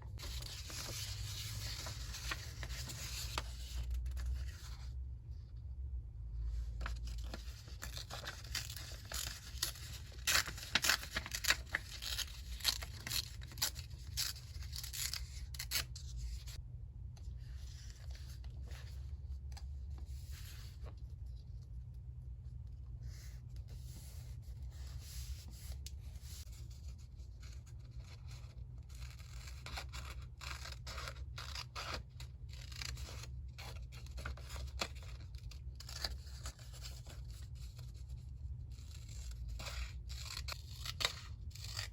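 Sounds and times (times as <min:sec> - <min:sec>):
paper crackling and rustling: 0:00.1 - 0:04.7, 0:06.8 - 0:15.8.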